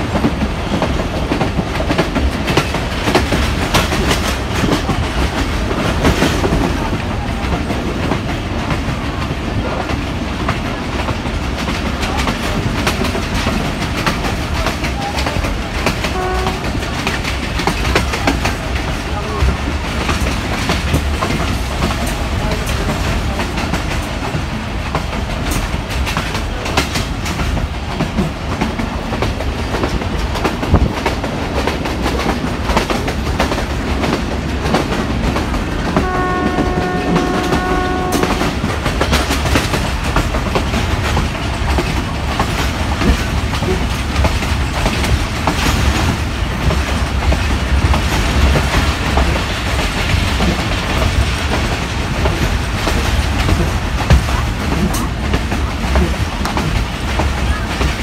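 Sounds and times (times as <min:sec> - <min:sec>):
train rumble with wheel clicks: 0:00.0 - 0:58.0
train horn: 0:16.0 - 0:17.0, 0:35.8 - 0:38.6.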